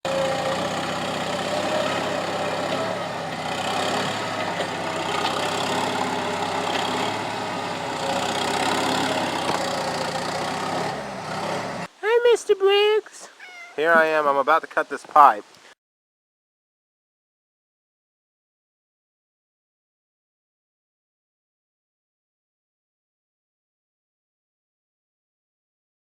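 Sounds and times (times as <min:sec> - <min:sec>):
skid steer engine running: 0:00.0 - 0:11.9.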